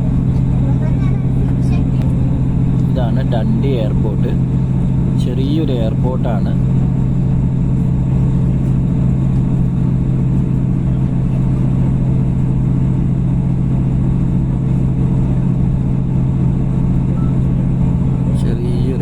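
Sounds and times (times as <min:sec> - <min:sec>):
diesel train droning: 0:00.0 - 0:19.0.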